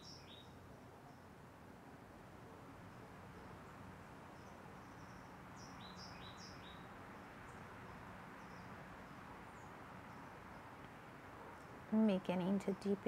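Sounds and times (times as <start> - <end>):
birds chirping faintly: 0.0 - 1.5
steady background noise: 0.0 - 13.0.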